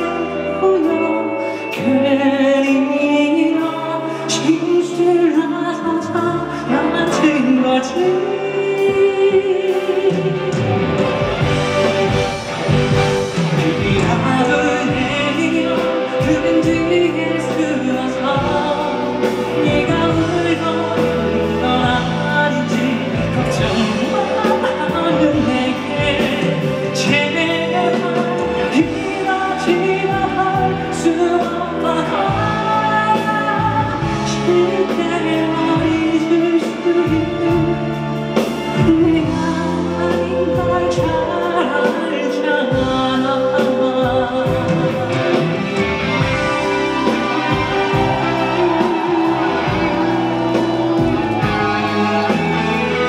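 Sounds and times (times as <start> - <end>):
live band playing pop ballad: 0.0 - 53.0
person singing: 0.0 - 53.0.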